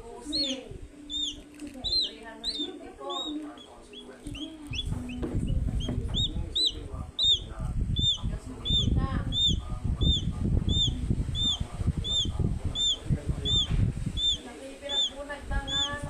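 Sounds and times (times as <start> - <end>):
bird peeping: 0.1 - 16.0
loud uneven low rumble: 4.4 - 16.0.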